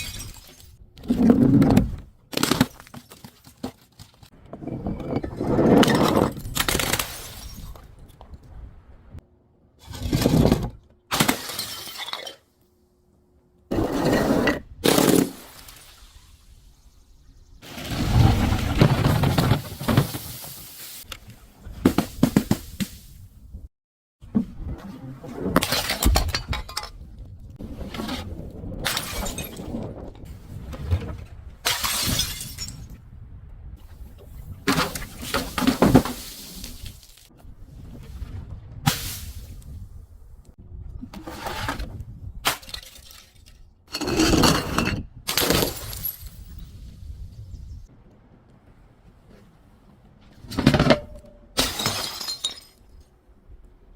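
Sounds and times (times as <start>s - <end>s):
glass bottles crushed and shattering: 0.0s - 0.8s, 11.2s - 12.4s, 28.9s - 29.6s, 31.7s - 32.9s, 42.6s - 46.6s, 50.7s - 53.0s
glass shattering and crunching: 0.0s - 0.8s, 5.9s - 7.9s, 11.2s - 12.4s, 31.6s - 32.9s, 45.3s - 46.6s, 51.6s - 53.0s.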